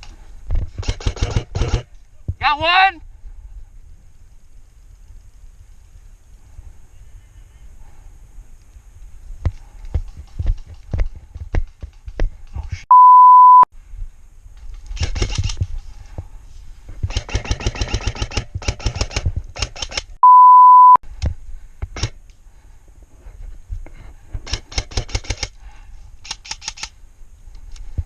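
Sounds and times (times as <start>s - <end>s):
airsoft guns firing: 0.8s - 1.9s
censor bleep tone: 12.9s - 13.7s, 20.2s - 21.0s.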